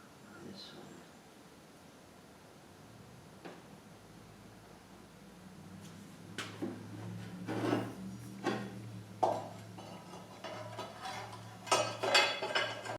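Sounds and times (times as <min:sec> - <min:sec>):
metal scraping: 0:07.1 - 0:12.9
metal tools clinking: 0:09.6 - 0:12.9.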